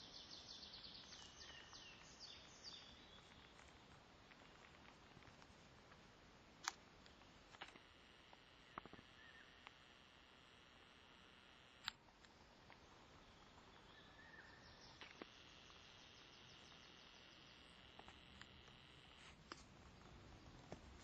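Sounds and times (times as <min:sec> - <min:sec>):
faint high hiss: 0:00.0 - 0:21.0
soft clicks: 0:06.6 - 0:09.0.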